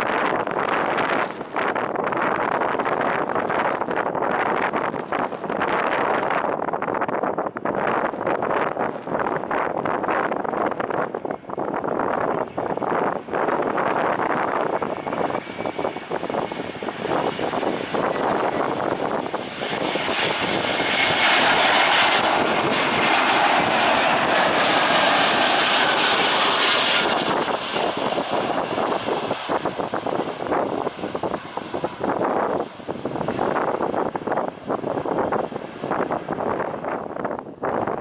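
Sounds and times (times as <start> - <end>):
wind buffeting microphone: 0.0 - 38.0
airliner engine passing: 8.7 - 38.0.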